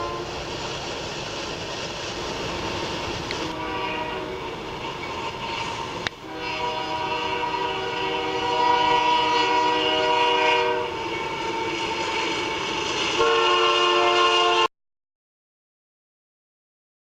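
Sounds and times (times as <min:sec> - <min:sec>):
locomotive air horn blasts: 0:00.0 - 0:00.4, 0:03.4 - 0:04.6, 0:05.4 - 0:14.7.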